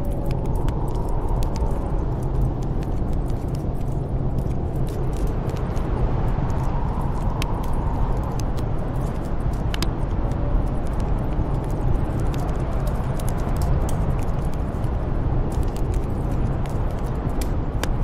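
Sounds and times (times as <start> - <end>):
storm wind rushing: 0.0 - 18.0
wood fire crackling: 0.0 - 18.0.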